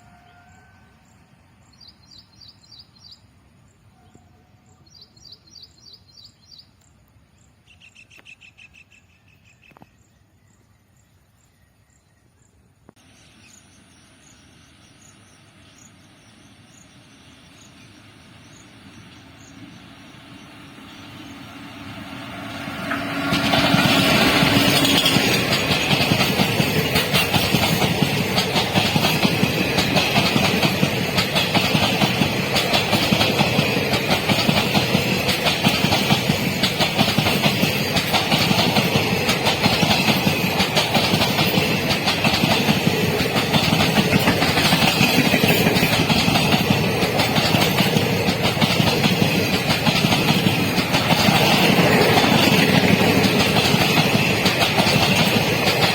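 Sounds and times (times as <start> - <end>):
train wheels clickety-clack: 17.6 - 55.9.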